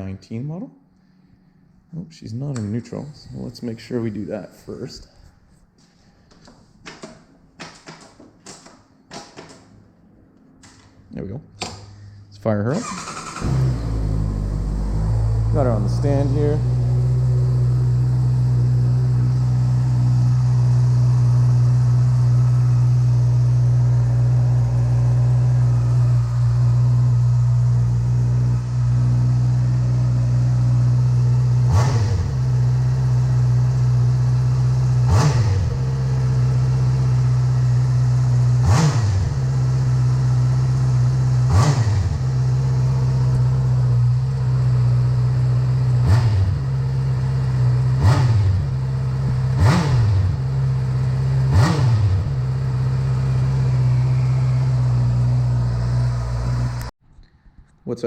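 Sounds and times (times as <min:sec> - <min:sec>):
motorcycle engine idling and revving: 0:12.8 - 0:56.9.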